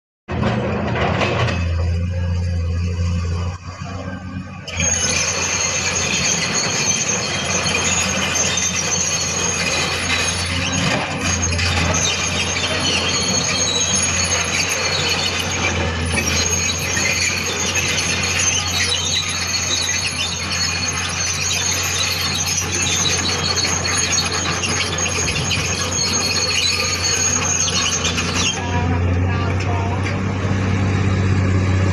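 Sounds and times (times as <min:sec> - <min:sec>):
steel tracks squealing and grinding: 0:00.3 - 0:31.9
low engine hum: 0:24.9 - 0:31.9.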